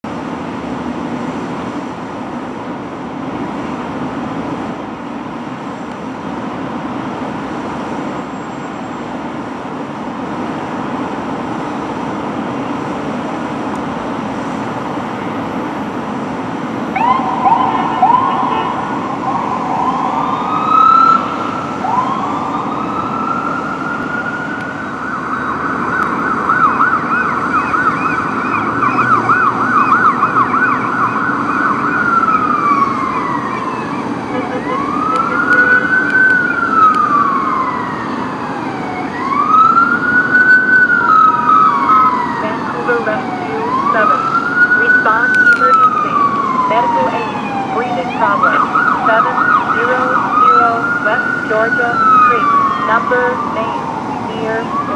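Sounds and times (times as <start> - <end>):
emergency vehicle siren: 0.0 - 54.9
street traffic: 0.0 - 54.9.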